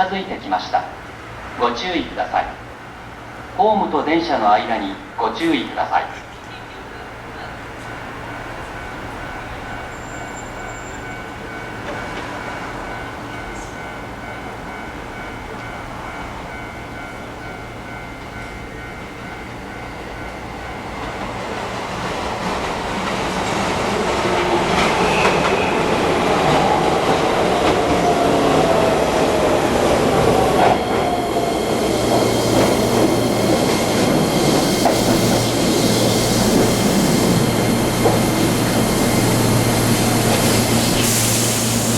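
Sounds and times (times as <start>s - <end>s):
train wheels clattering on rails: 7.8s - 41.9s
train whine falling in pitch: 23.0s - 41.9s.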